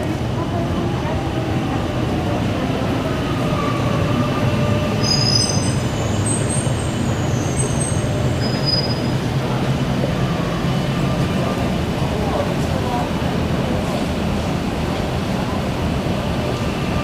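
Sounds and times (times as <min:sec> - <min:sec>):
electric train rumbling: 0:00.0 - 0:17.0
wheel squeal: 0:05.0 - 0:09.1.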